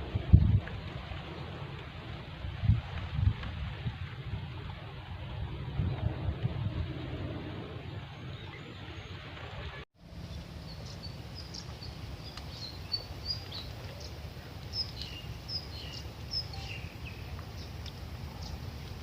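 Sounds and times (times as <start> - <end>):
small birds chirping: 10.2 - 19.0.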